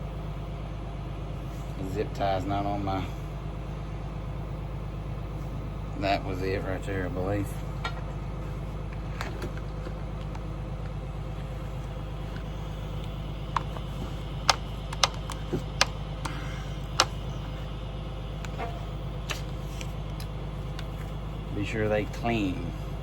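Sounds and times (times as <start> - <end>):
tractor engine idling: 0.0 - 23.0
clicks and taps on metal: 12.4 - 17.2.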